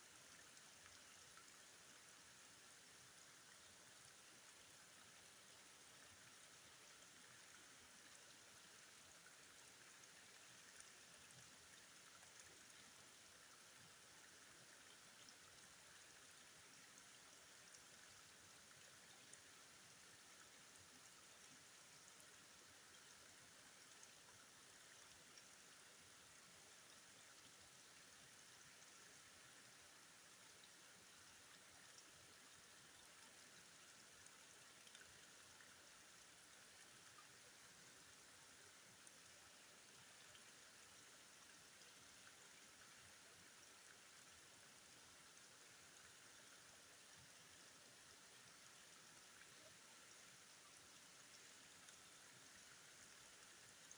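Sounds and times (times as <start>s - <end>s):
flowing river water: 0.0s - 53.9s.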